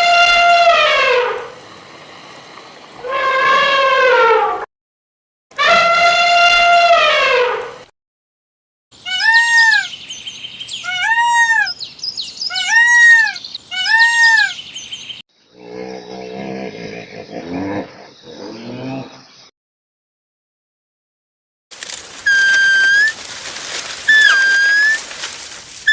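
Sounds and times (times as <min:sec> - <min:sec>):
animal calls: 0:09.0 - 0:10.0, 0:10.8 - 0:11.8, 0:12.5 - 0:14.6, 0:22.1 - 0:25.9.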